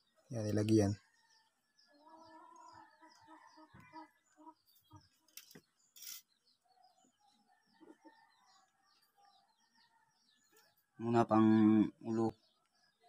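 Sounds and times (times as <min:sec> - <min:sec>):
faint small birds chirping: 0:00.0 - 0:13.0
brief rustle: 0:05.2 - 0:06.3.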